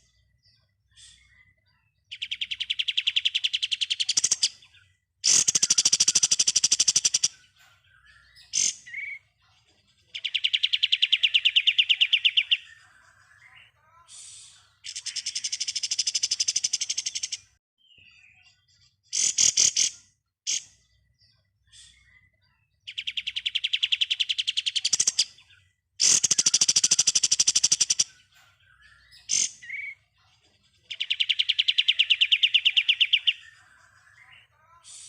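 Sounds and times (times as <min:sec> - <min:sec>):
sharp bird calls: 0:00.9 - 0:09.4, 0:10.1 - 0:35.0
songbird trilling: 0:10.2 - 0:13.6, 0:30.9 - 0:34.7.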